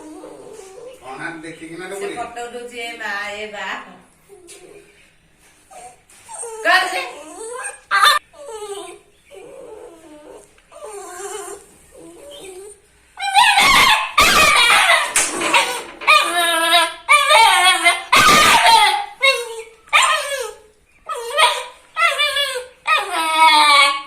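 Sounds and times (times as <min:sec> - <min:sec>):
puppy whimpering: 0:00.0 - 0:01.3, 0:04.3 - 0:05.0, 0:05.7 - 0:24.0
puppy yapping barks: 0:13.4 - 0:20.3.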